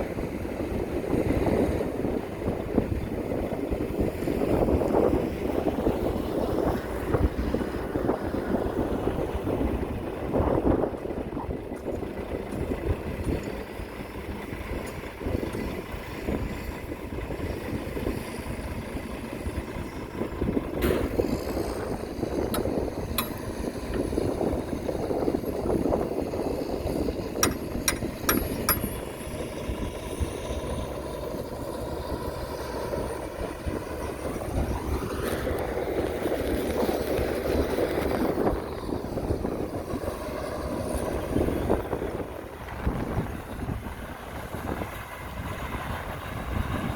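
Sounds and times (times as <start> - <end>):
diesel machinery engine running: 0.0 - 46.9
sharp metallic clanks: 22.4 - 24.2, 27.4 - 29.2.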